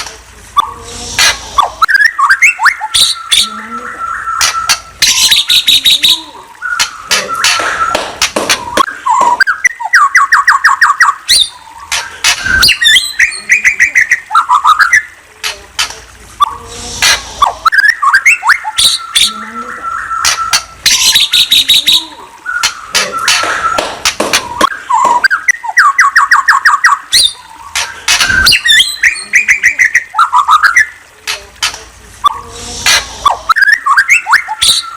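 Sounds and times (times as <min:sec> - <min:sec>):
songbird singing: 0:00.6 - 0:16.8, 0:17.4 - 0:32.6, 0:33.2 - 0:34.9.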